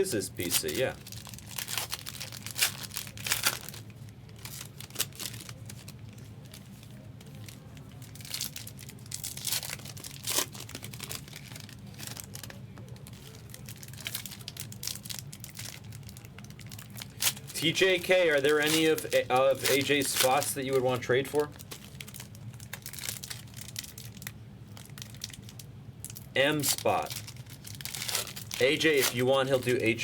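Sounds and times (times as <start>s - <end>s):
steady low hum: 0.0s - 30.0s
foil wrappers tearing and crinkling: 0.4s - 30.0s.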